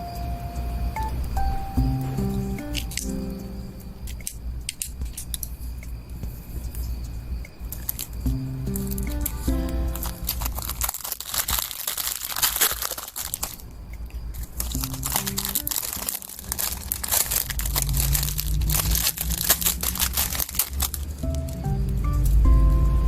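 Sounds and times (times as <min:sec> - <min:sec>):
soft background music: 0:00.0 - 0:23.0
packaging crinkling: 0:07.8 - 0:13.8, 0:14.4 - 0:21.6.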